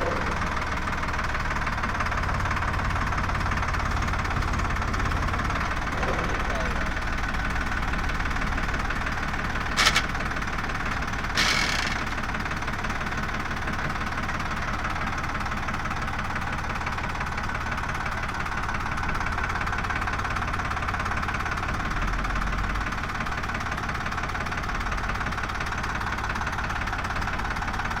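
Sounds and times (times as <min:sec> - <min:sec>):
diesel engine running: 0:00.0 - 0:28.0
short sharp noise: 0:09.8 - 0:10.2, 0:11.4 - 0:12.2.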